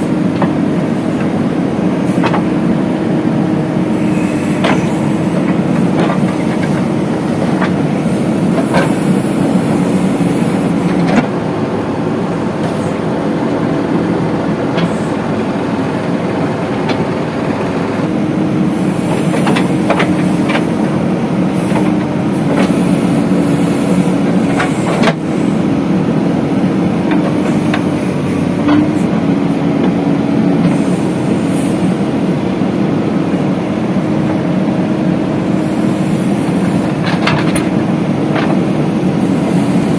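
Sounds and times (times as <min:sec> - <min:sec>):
diesel engine under load: 0:00.0 - 0:39.9.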